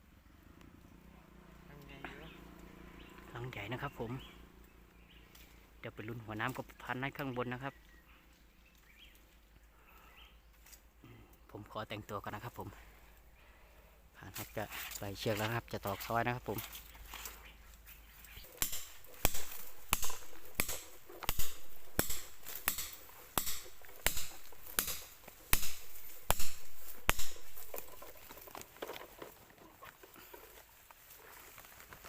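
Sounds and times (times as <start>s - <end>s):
hammer knocking peg into wood: 18.6s - 28.0s.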